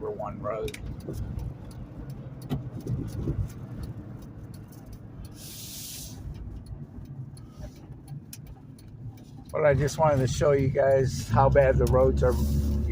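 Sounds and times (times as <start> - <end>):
light ticks: 0.0 - 12.8
car road rumble: 0.0 - 12.9
brief hiss: 5.4 - 6.3.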